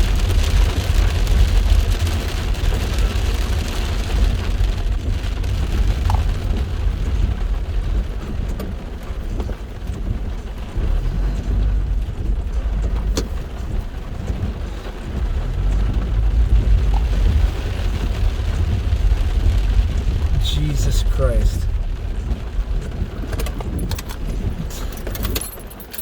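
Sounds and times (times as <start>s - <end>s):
heavy rain pouring: 0.0s - 25.9s
constant low rumble: 0.0s - 26.0s.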